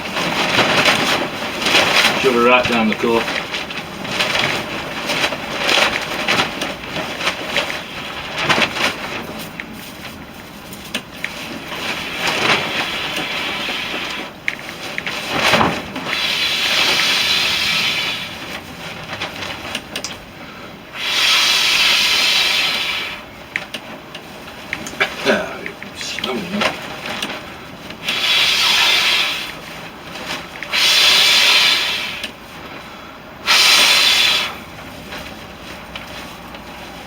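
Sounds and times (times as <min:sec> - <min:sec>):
dry tinder crackling and rustling: 0:00.0 - 0:37.0
person blowing into tinder: 0:21.0 - 0:23.2, 0:28.0 - 0:29.6, 0:30.7 - 0:32.3, 0:33.4 - 0:34.6.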